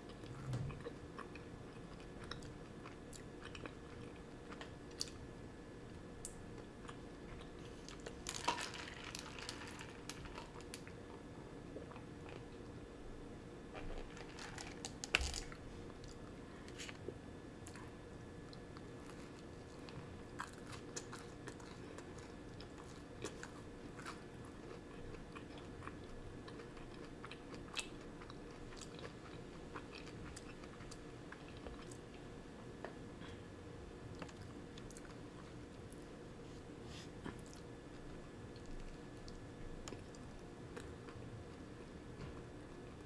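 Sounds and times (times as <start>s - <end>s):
chewing crunchy bagel: 0.0s - 5.3s, 13.7s - 32.4s.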